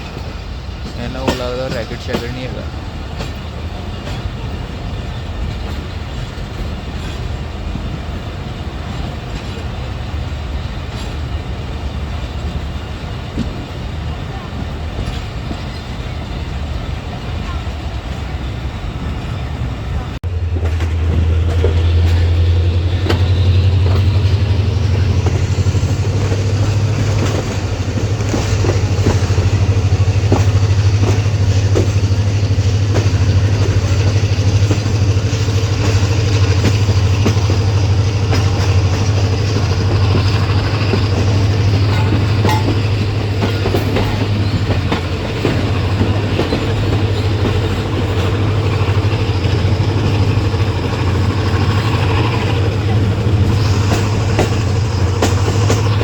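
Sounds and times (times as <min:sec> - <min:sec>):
wheels clicking over rail joints: 0:00.0 - 0:19.4, 0:20.2 - 0:56.0
train rumbling: 0:00.0 - 0:56.0.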